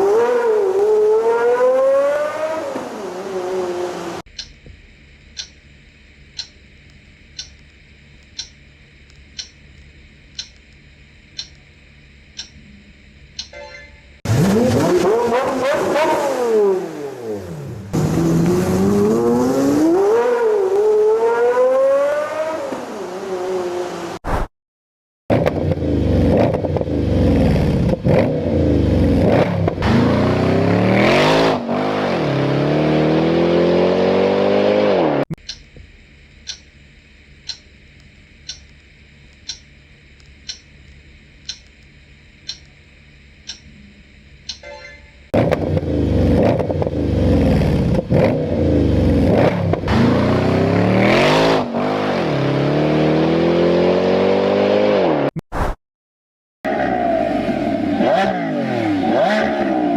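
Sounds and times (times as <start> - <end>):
car engine revving: 0.0 - 4.3, 14.3 - 24.0, 25.3 - 35.3, 45.3 - 55.3, 56.7 - 59.9
regular ticking: 4.3 - 14.1, 35.3 - 45.0.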